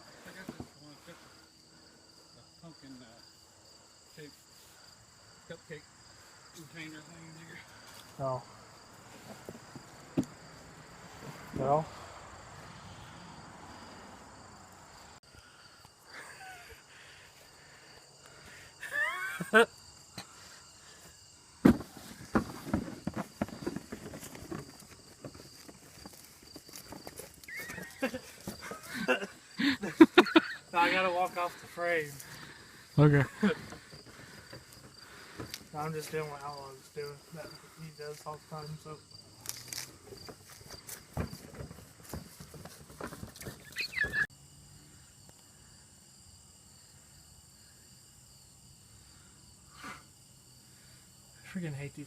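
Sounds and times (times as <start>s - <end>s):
crickets chirping: 0.0s - 52.0s
footsteps: 21.0s - 29.1s, 39.4s - 44.3s
rustling: 21.7s - 29.4s.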